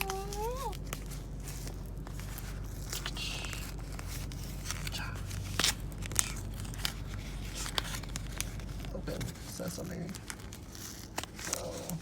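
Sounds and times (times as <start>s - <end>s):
wrapper crinkling and tearing: 0.0s - 12.0s.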